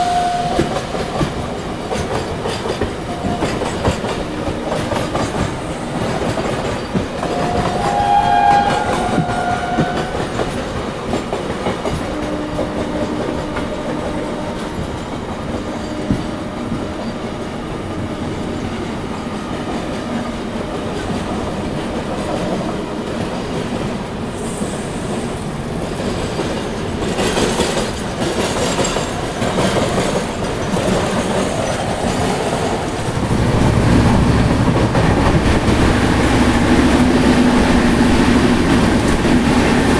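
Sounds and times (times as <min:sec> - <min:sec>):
train horn: 0:00.0 - 0:01.2, 0:07.1 - 0:16.8
train rumble and wheel clatter: 0:00.0 - 0:39.9.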